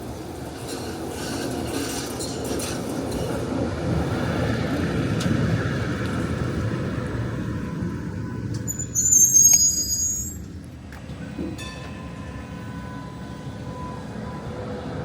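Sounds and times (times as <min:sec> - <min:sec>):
tram rumbling on rails: 0:00.0 - 0:15.0.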